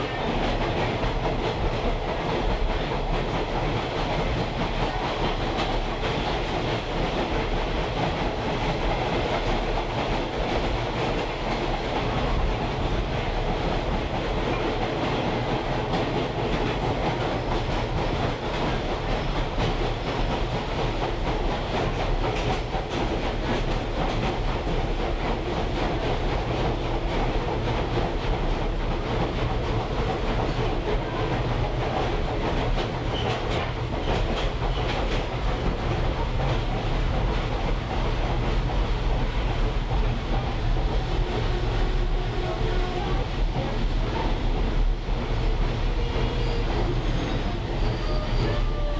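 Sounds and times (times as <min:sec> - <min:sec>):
train rumbling and rattling: 0:00.0 - 0:48.9.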